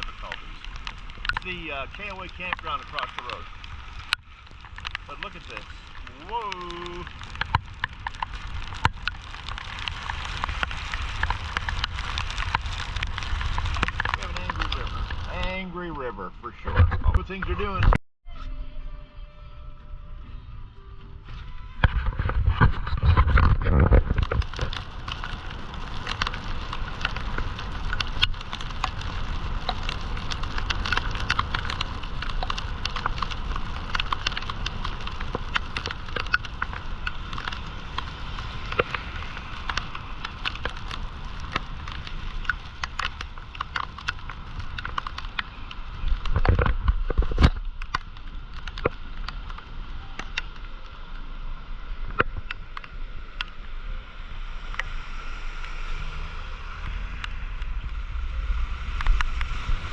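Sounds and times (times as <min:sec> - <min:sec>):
floodwater rushing: 0:00.0 - 0:16.0
heavy low rumbles: 0:00.0 - 0:18.0.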